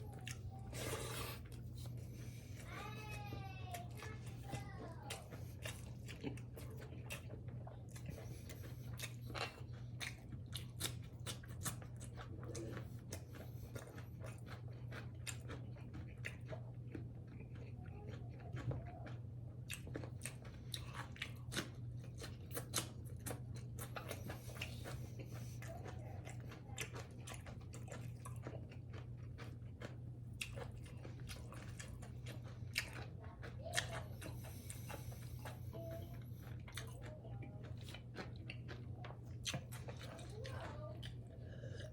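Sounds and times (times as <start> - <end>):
person chewing food: 0.0 - 41.9
steady low hum: 0.0 - 41.9.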